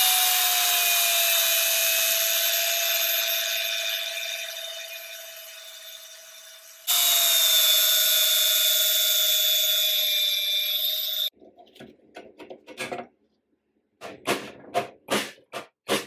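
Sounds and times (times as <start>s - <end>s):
electric power tool whining: 0.0s - 11.3s.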